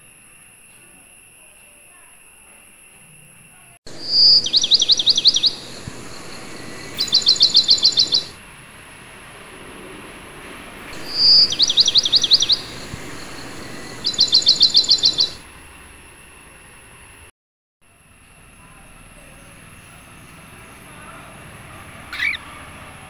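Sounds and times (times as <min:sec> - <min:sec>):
bird song: 0:03.9 - 0:08.4, 0:10.9 - 0:15.4, 0:19.2 - 0:22.8.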